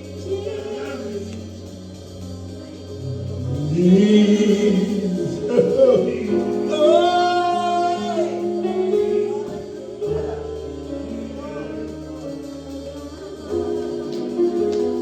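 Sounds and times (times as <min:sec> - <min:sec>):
gospel worship singing: 0:00.0 - 0:15.0
sustained instrumental chords: 0:00.0 - 0:15.0.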